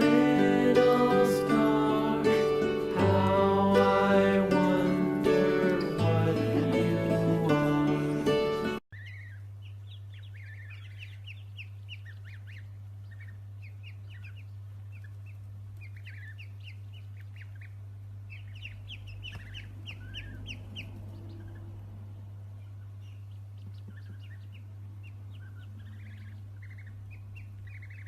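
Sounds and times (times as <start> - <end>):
small birds chirping: 0.0 - 28.0
steady low hum: 0.0 - 28.0.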